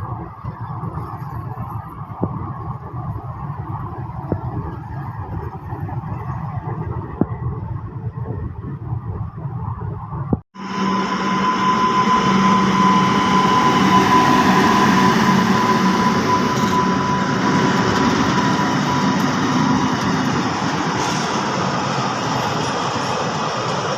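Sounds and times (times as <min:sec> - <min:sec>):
train wheels rumbling on rails: 0:00.0 - 0:23.9
thin steady whine: 0:10.2 - 0:23.9.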